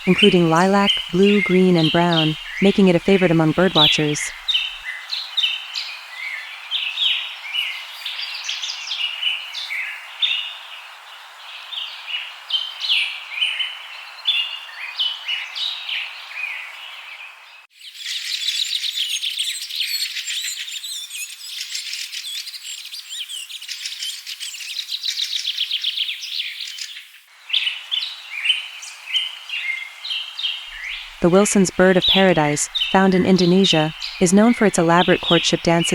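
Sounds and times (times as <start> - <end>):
birds chirping and calling: 0.0 - 4.8, 30.7 - 35.9.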